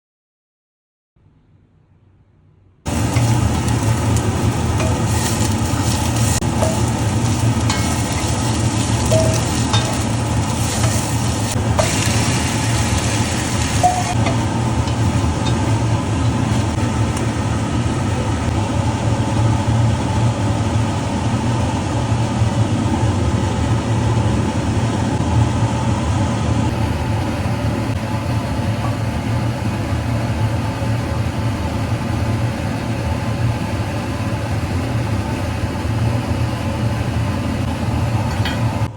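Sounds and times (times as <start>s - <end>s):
steady low hum: 1.2s - 38.9s
food sizzling in a pan: 2.9s - 17.1s.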